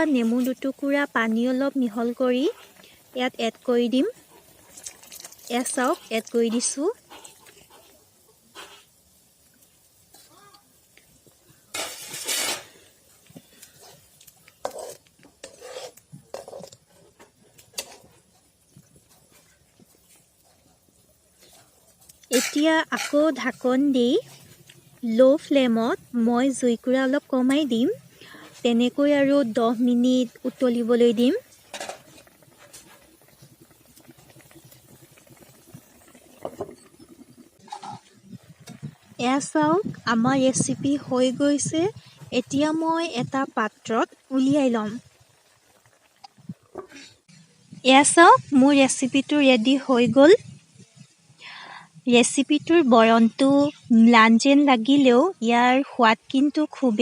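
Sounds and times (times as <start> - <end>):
pot bubbling faintly: 0.0 - 57.0
spoon scraping a cooking pot: 11.2 - 20.6, 21.3 - 24.9, 31.4 - 38.9.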